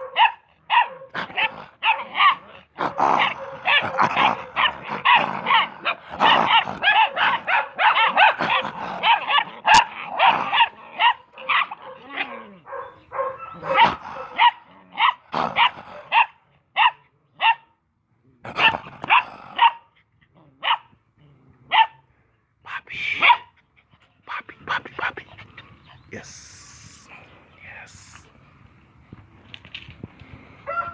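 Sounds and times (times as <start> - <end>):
puppies barking and yapping: 0.0 - 17.6.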